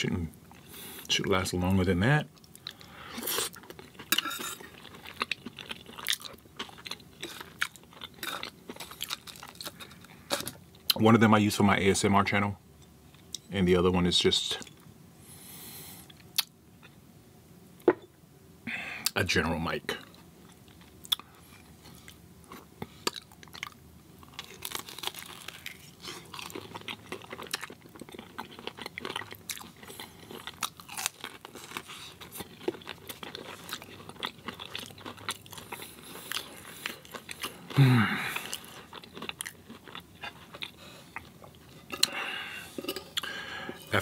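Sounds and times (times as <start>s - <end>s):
chewing crispy fried food: 2.2s - 11.0s, 19.9s - 44.0s.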